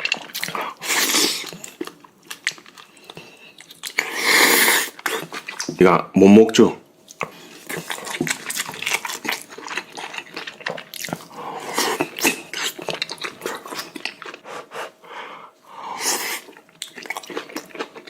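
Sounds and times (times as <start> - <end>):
chewing with wet smacking: 0.0 - 4.1, 4.9 - 5.8, 7.0 - 14.4, 16.3 - 18.0.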